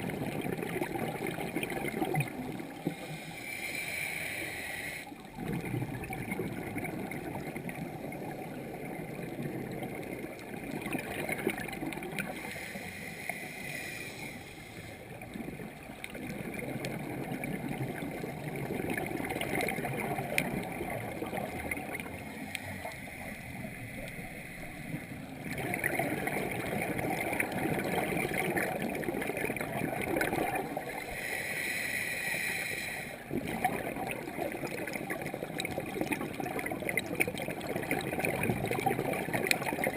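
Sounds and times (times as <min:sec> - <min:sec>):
gurgling exhaled bubbles: 0:00.0 - 0:03.3, 0:05.2 - 0:12.5, 0:15.0 - 0:31.2, 0:33.2 - 0:39.9
regulator hissing inhalations: 0:02.9 - 0:05.2, 0:12.3 - 0:15.1, 0:31.0 - 0:33.2.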